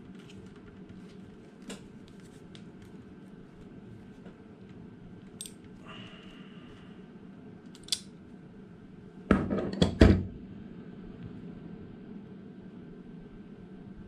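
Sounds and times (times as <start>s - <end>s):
tools clicking: 5.4s - 5.6s, 7.7s - 8.1s.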